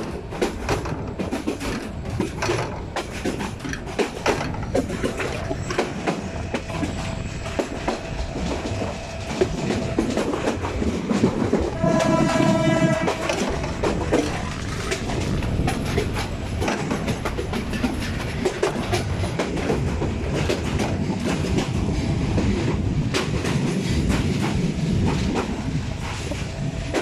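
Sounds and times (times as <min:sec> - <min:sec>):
wheels clicking over rail joints: 0:00.0 - 0:27.0
train horn blast: 0:11.4 - 0:14.6.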